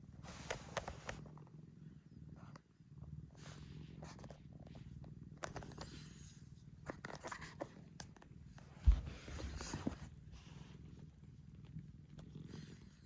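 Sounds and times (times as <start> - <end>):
light clicks and rustles: 0.3 - 1.2
heavy thump: 8.8 - 9.8.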